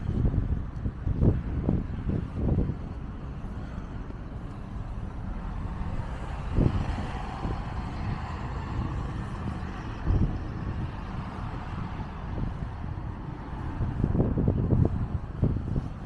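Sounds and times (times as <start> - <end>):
dull low thumps: 0.0 - 16.0
street traffic: 0.0 - 16.0
wind rumble on microphone: 0.0 - 16.0
vehicle passing by: 5.2 - 15.6.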